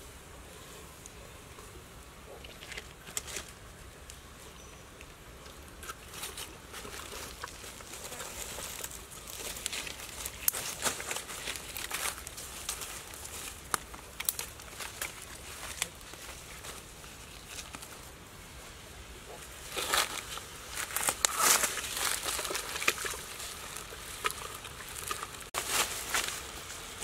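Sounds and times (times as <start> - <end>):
leaves rustling and crinkling: 0.0 - 27.0
wood fire crackling: 5.0 - 18.2.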